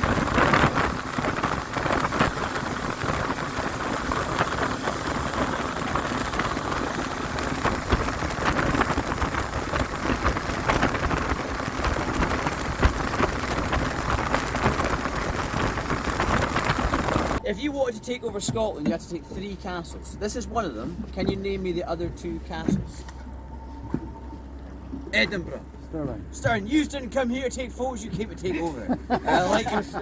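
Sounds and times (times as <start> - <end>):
crackles and splashes: 0.0 - 17.4
water rushing: 0.0 - 17.4
wind noise: 0.0 - 17.5
speed boat engine: 0.0 - 30.0.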